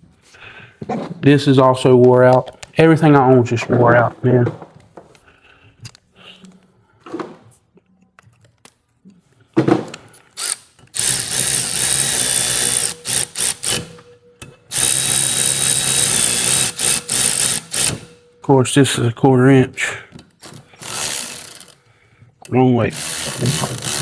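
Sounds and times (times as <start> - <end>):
power drill running: 10.4 - 14.0, 14.7 - 18.1, 20.8 - 21.8, 22.9 - 24.0.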